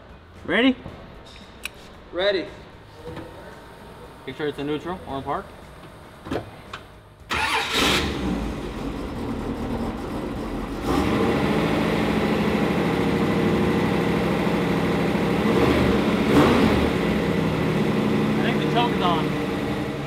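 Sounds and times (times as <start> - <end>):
car starter cranking: 7.3 - 8.3.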